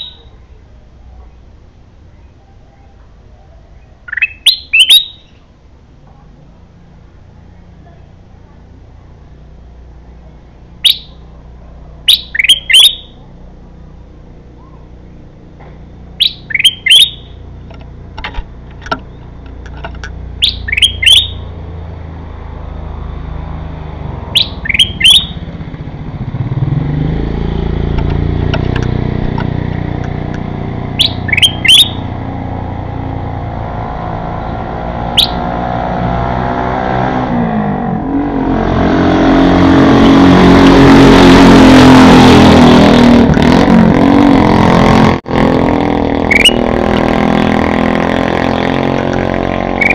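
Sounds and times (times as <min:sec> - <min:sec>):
bulbul singing: 0:00.0 - 0:05.6, 0:10.5 - 0:11.4, 0:12.0 - 0:13.3, 0:16.0 - 0:18.0, 0:18.7 - 0:22.1, 0:24.3 - 0:25.8, 0:30.0 - 0:33.3, 0:34.3 - 0:35.6, 0:46.2 - 0:47.0, 0:48.9 - 0:49.9
motor vehicle passing: 0:00.0 - 0:49.9.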